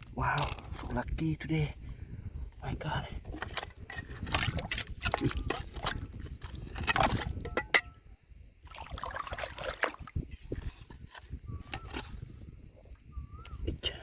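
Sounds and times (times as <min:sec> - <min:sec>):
rocks clattering together: 0:00.0 - 0:01.3, 0:03.2 - 0:08.0
water sloshing: 0:03.2 - 0:08.0, 0:08.6 - 0:13.0.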